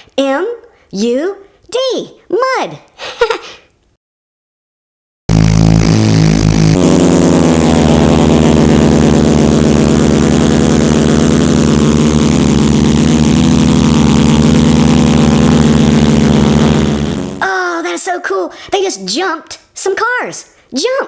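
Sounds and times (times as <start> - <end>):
monster truck engine revving: 5.3 - 17.4.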